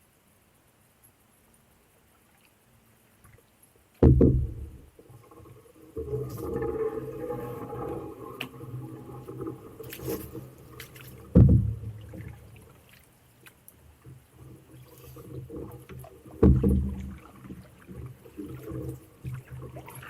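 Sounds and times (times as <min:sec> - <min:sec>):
paddle working in water: 0:02.1 - 0:20.0
hollow knock on canoe hull: 0:04.0 - 0:04.8, 0:11.2 - 0:12.2, 0:16.3 - 0:17.2.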